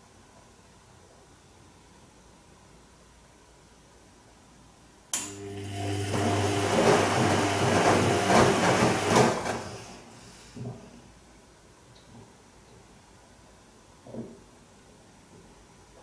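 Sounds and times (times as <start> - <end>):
washing machine motor humming: 5.2 - 10.4
water and laundry sloshing: 5.7 - 10.3.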